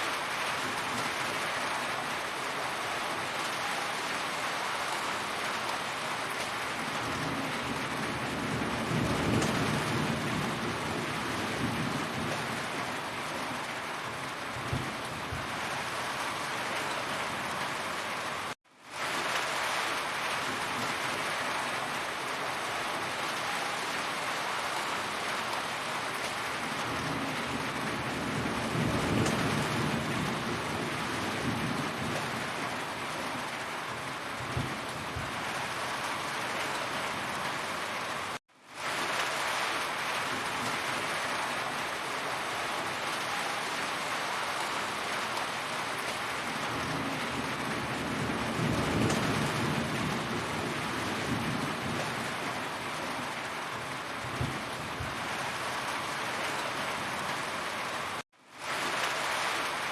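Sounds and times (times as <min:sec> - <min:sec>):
heavy rain: 0:00.0 - 0:59.9
thunder rumble: 0:06.8 - 0:18.6, 0:26.4 - 0:38.3, 0:46.2 - 0:57.6.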